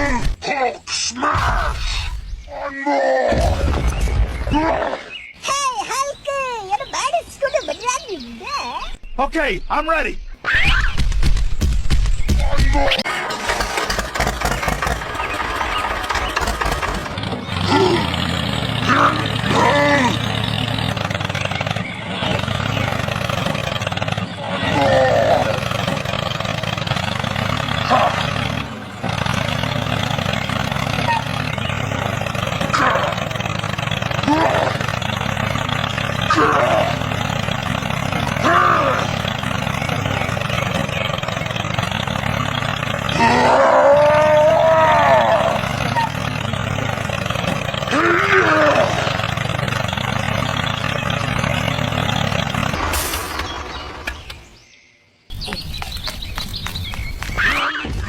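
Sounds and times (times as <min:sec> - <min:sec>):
tractor engine running: 0:11.0 - 0:58.0.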